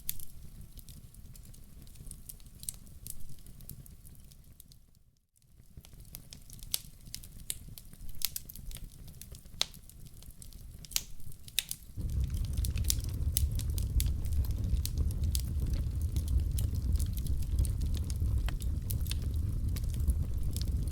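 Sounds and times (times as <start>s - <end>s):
wood fire crackling: 0.0s - 4.7s, 5.6s - 20.9s
low rumble: 12.0s - 20.9s.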